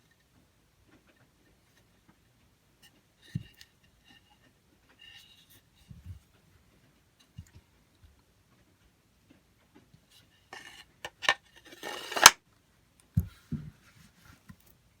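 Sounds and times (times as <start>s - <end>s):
knife sliding in sheath: 10.6s - 12.4s.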